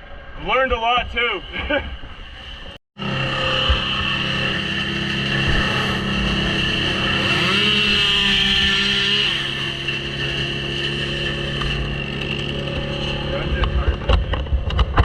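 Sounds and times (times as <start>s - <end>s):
chainsaw engine revving: 3.0s - 14.3s.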